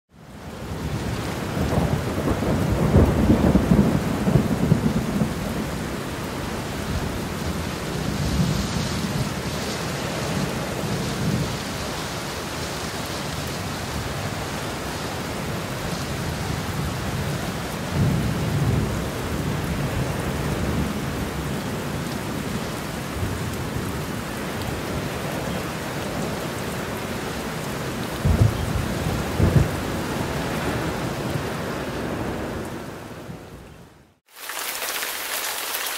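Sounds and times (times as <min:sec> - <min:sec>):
steady rain: 0:00.1 - 0:35.9
thunder rumbling: 0:00.6 - 0:11.9, 0:28.2 - 0:33.4.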